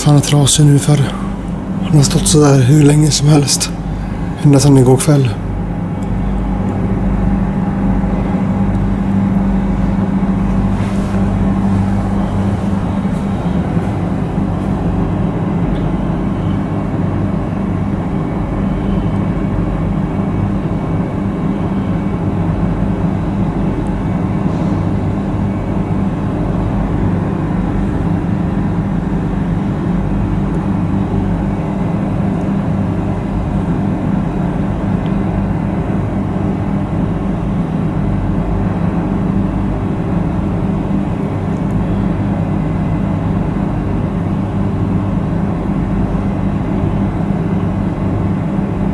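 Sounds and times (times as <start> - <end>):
low machinery drone: 0.0 - 48.9.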